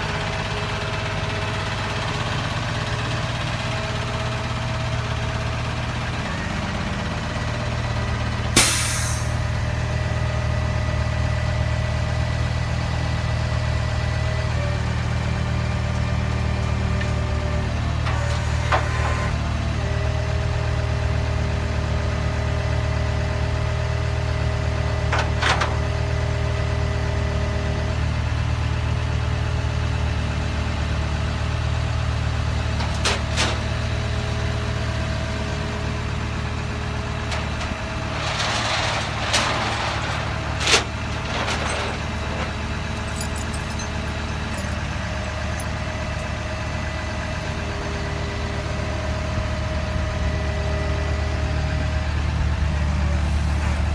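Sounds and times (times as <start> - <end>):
diesel engine idling: 0.0 - 53.9
short hiss: 8.6 - 9.3.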